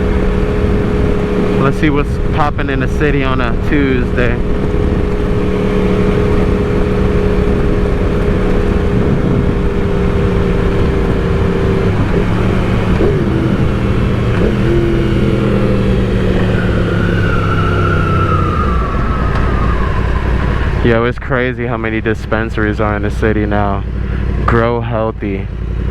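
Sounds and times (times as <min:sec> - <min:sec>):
wind rushing: 0:00.0 - 0:22.7
higher tone sliding downward: 0:00.0 - 0:24.0
motorcycle engine cruising: 0:00.0 - 0:25.9.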